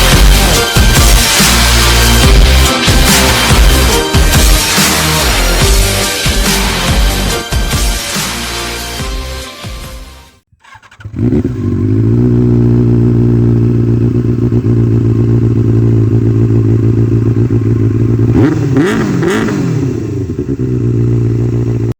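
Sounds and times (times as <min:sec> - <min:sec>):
motorcycle engine idling: 0:10.6 - 0:21.9.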